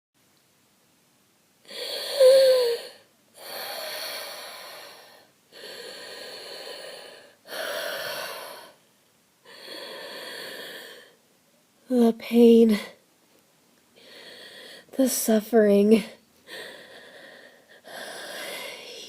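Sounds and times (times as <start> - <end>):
person breathing heavily: 1.7 - 11.2, 14.0 - 15.0, 16.4 - 19.0.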